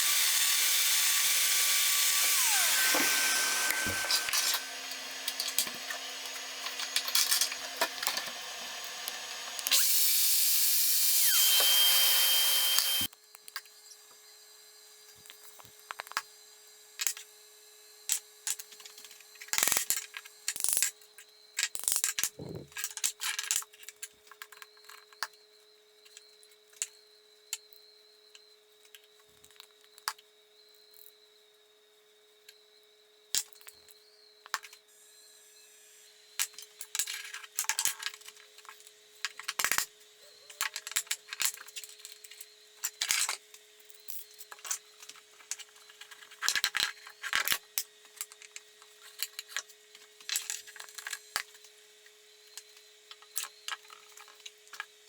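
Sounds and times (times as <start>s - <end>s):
power tool working wood: 0.0s - 13.1s.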